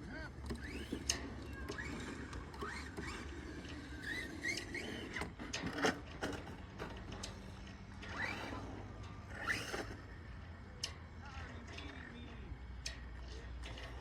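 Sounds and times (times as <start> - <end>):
small electric motor whining: 0.0 - 10.5.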